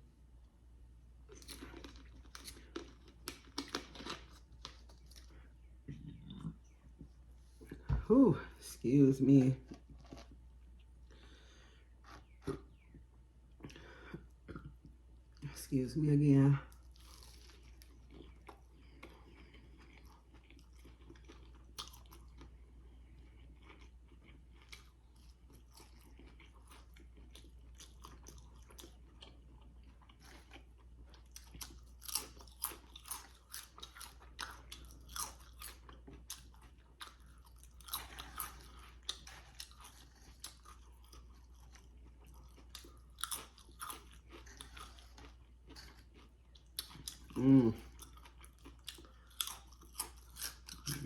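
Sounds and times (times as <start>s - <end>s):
faint low hum: 0.0s - 51.0s
chewing food: 1.3s - 7.9s, 9.6s - 11.4s, 16.7s - 51.0s.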